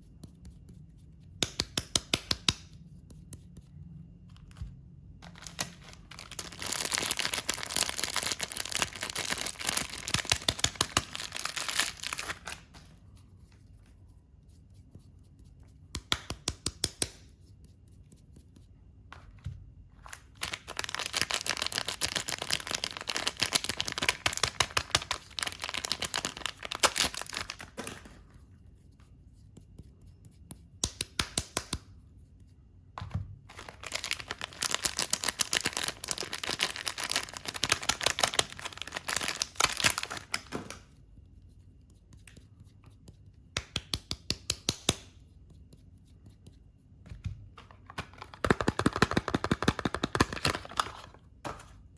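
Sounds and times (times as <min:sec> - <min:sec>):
packaging tearing and crinkling: 0:05.2 - 0:12.7, 0:20.0 - 0:27.8, 0:33.5 - 0:40.6, 0:47.9 - 0:51.2.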